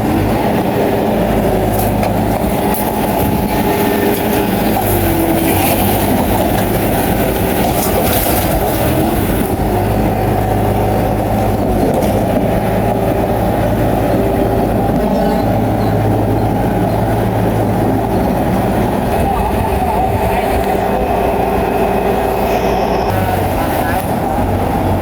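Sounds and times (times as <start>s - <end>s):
bulldozer diesel engine: 0.0s - 25.0s
steel tracks clanking: 0.0s - 25.0s.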